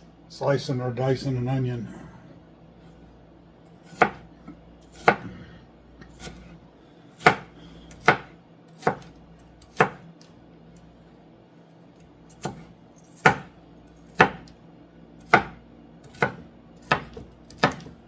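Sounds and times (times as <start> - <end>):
knife chopping on cutting board: 3.8 - 4.2, 4.9 - 5.4, 6.0 - 6.6, 7.2 - 10.1, 12.3 - 13.5, 14.1 - 14.5, 15.2 - 18.0.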